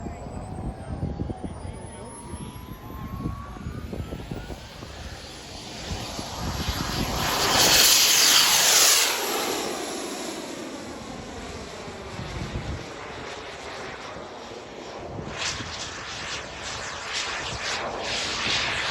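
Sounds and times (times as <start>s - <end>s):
model jet turbine whine: 0.0s - 18.9s.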